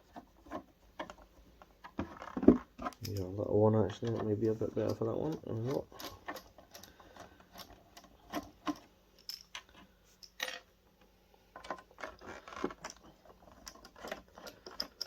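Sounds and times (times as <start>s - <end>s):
screwdriver and parts clicking: 11.6s - 15.0s.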